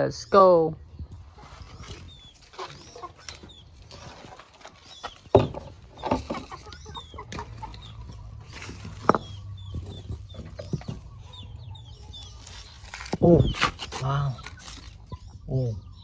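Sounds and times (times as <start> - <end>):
chickens clucking: 0.0 - 16.0
loud chicken calls: 1.3 - 15.2.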